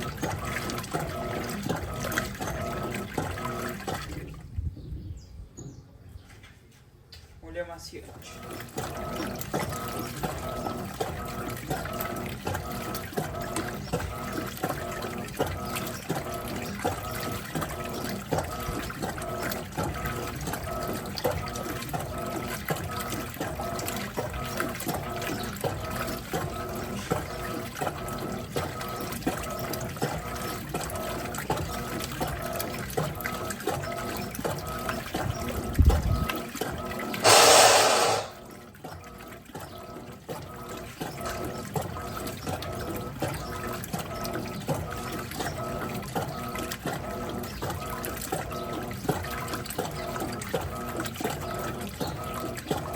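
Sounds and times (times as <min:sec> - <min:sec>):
washing machine water sloshing: 0:00.0 - 0:05.2, 0:07.9 - 0:52.9
loud rush of water: 0:37.2 - 0:38.4.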